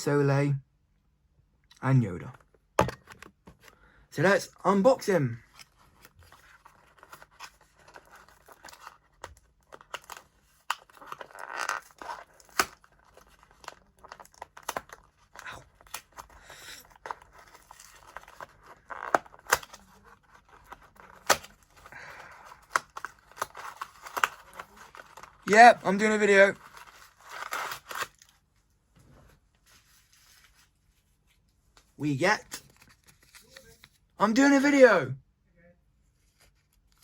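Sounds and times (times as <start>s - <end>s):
packaging tearing and crinkling: 5.6s - 25.5s, 26.5s - 28.4s.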